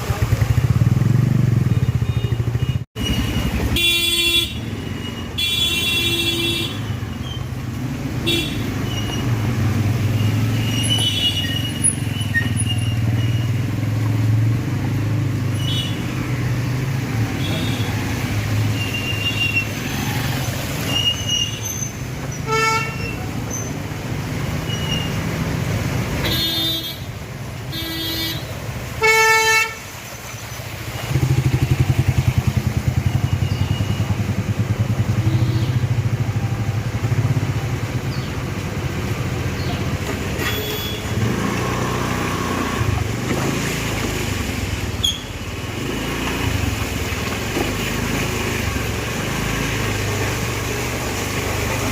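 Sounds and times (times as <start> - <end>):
vehicle engines running: 0.0 - 5.3, 6.1 - 27.7, 28.4 - 51.9
car horn honks: 3.7 - 4.7, 26.2 - 27.1
loud engine close by: 41.1 - 44.9.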